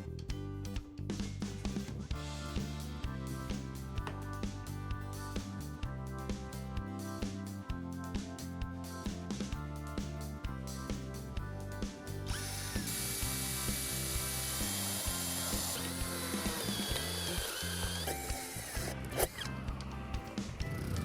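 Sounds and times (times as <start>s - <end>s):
background music: 0.0s - 21.0s
power tool running: 12.2s - 19.7s.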